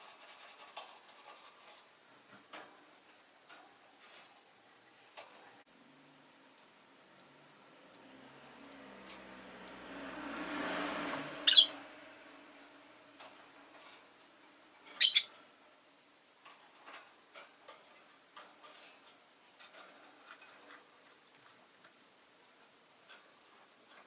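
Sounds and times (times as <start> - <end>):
bird sharp calls: 11.4 - 11.8, 14.9 - 15.4.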